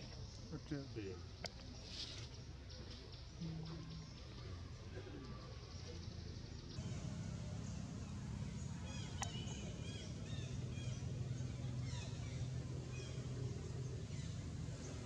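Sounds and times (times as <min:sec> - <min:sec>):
birds chirping: 0:00.1 - 0:15.0
low rumble: 0:06.8 - 0:15.0.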